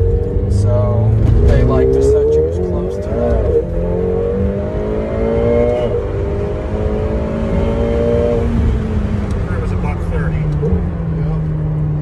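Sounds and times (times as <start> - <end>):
sports car engine accelerating: 0.0 - 12.0.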